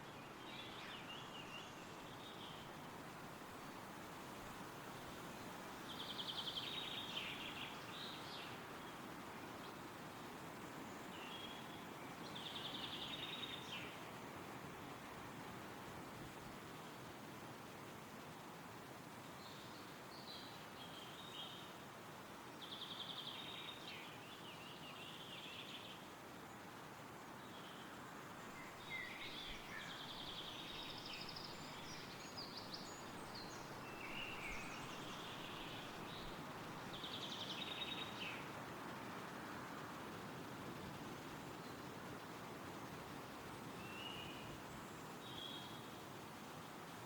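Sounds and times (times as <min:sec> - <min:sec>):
wind rustling through trees: 0:00.0 - 0:47.0
songbirds singing with trills: 0:05.3 - 0:14.4, 0:22.6 - 0:38.7, 0:43.4 - 0:46.0.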